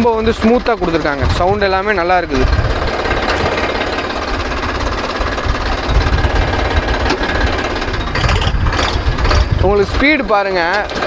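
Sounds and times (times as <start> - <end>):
tractor diesel engine clatter: 0.0 - 11.0.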